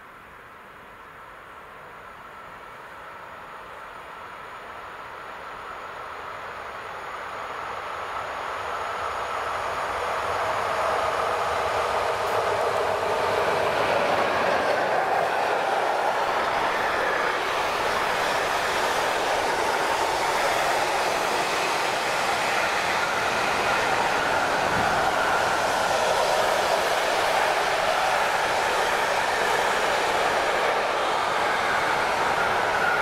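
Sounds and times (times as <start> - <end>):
electric locomotive passing: 1.9 - 33.0.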